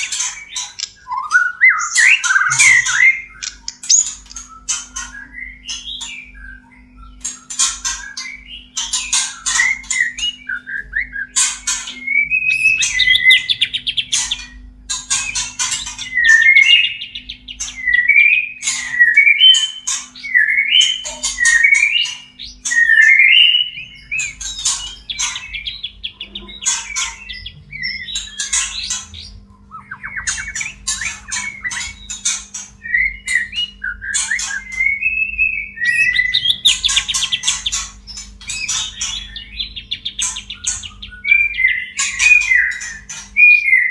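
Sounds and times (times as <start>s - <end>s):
bird clicking chatter and whistles: 0.6s - 5.0s.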